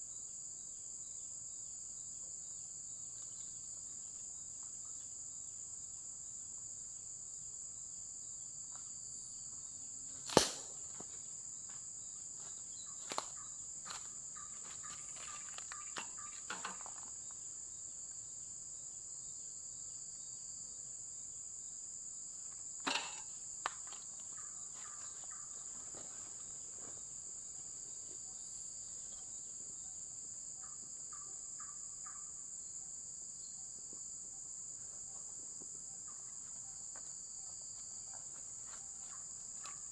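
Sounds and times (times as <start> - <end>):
crickets chirping: 0.0 - 39.9
sharp knock: 10.3 - 10.8.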